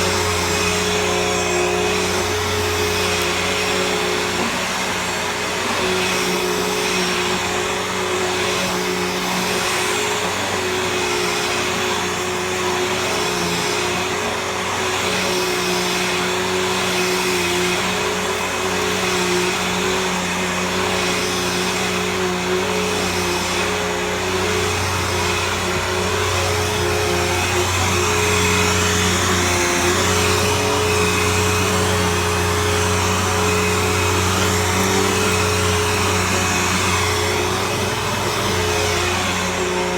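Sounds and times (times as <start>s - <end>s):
vacuum cleaner running on carpet: 0.0s - 39.9s.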